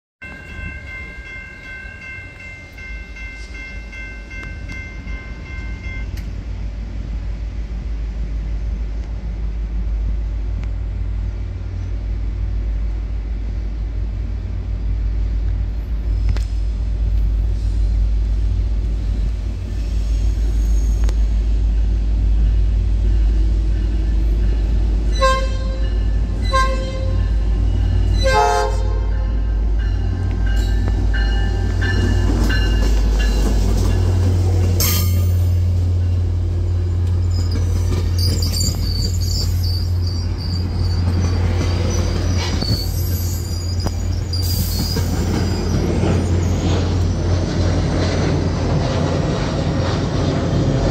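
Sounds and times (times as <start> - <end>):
locomotive rumble: 0.3 - 50.9
train wheels squealing: 19.5 - 28.5, 36.8 - 50.8
train horn blasts: 25.1 - 27.3, 28.1 - 29.5.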